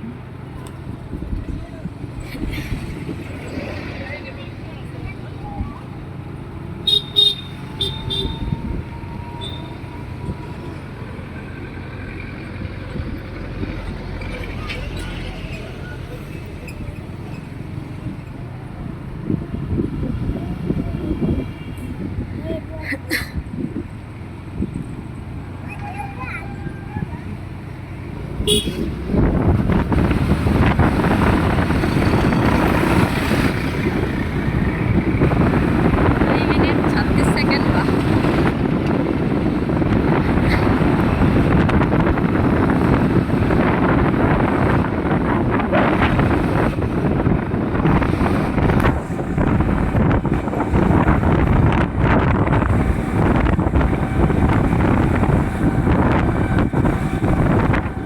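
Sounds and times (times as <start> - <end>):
wind buffeting microphone: 0.0 - 6.7, 7.6 - 58.0
truck engines rumbling: 0.0 - 58.0
horn toot: 6.8 - 8.5, 28.4 - 29.0.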